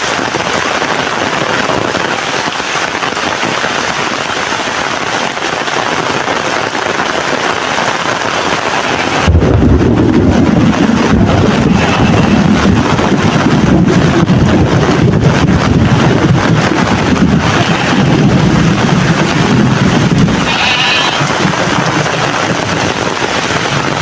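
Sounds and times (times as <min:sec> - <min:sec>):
heavy rain falling: 0:00.0 - 0:24.0
loud low rumble: 0:09.1 - 0:23.0.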